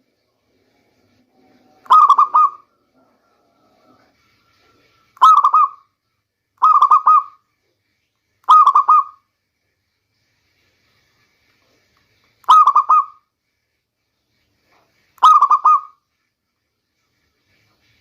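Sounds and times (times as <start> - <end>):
dove staccato cooing: 1.8 - 4.1.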